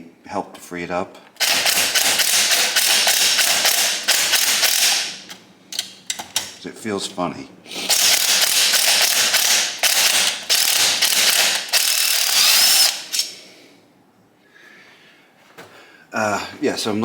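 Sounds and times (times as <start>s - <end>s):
tool ratcheting: 1.4s - 6.6s, 7.8s - 13.3s.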